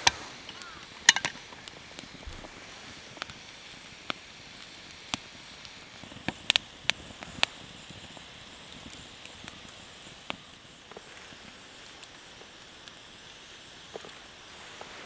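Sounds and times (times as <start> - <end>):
sharp irregular clicks and knocks: 0.0 - 1.6
faint steady hiss: 0.0 - 15.0.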